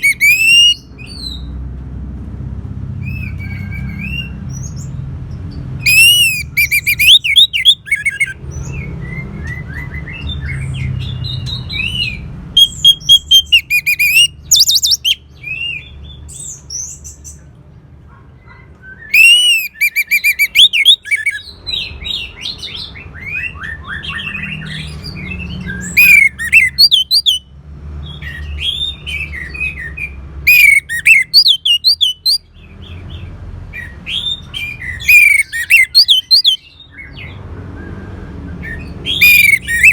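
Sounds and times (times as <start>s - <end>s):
thrush singing whistled trills: 0.0s - 1.5s, 5.8s - 17.4s, 18.9s - 27.5s, 28.1s - 33.0s, 33.8s - 39.9s.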